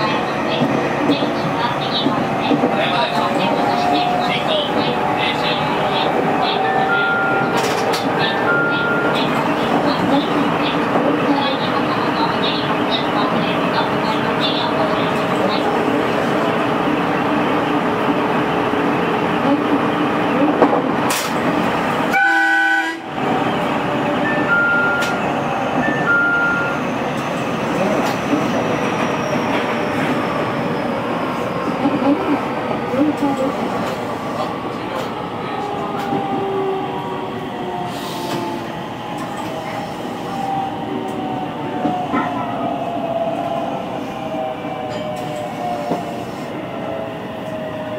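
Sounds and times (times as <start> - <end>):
train rumble with motor tone: 0.0 - 47.9
horn-like toot: 22.1 - 23.1.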